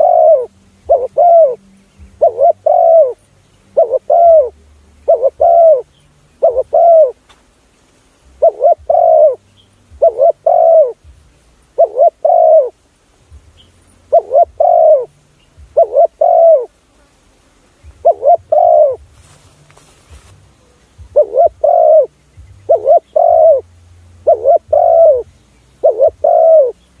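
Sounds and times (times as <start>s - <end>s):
dove cooing: 0.0s - 7.2s, 8.4s - 11.1s, 11.7s - 12.8s, 14.1s - 16.8s, 17.9s - 19.1s, 20.9s - 27.0s.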